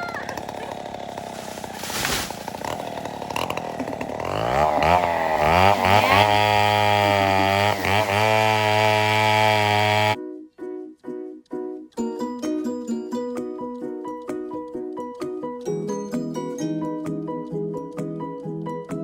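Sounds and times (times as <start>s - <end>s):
chainsaw revving: 0.0s - 10.2s.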